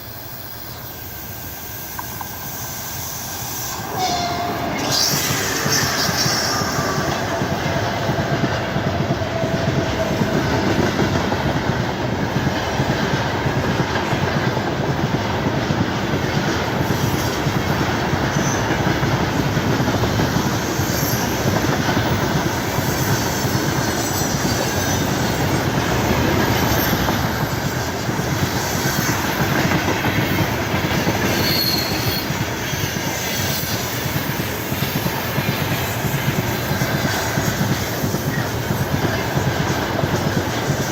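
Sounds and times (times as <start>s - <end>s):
freight train wheels clattering: 1.9s - 40.9s
faint wheel squeal: 3.0s - 7.6s, 31.2s - 32.3s.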